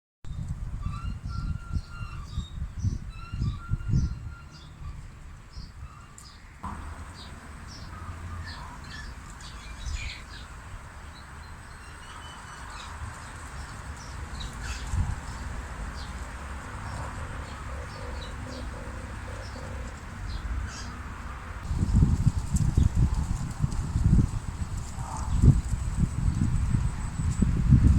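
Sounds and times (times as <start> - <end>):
small birds chirping: 5.5 - 21.0
dove cooing: 16.9 - 20.1.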